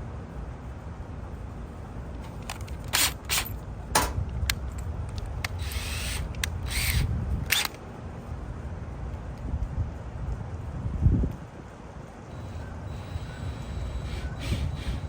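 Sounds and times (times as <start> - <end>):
steady low rumble: 0.2 - 11.3
screwdriver clicks and scraping: 2.2 - 7.8, 13.0 - 15.0.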